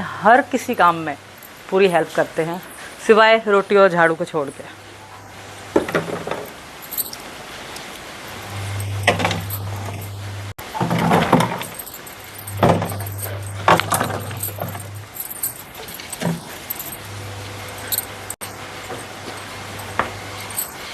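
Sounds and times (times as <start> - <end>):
steady low hum: 6.8 - 10.6, 11.4 - 20.9
bottles clinking: 10.8 - 20.9.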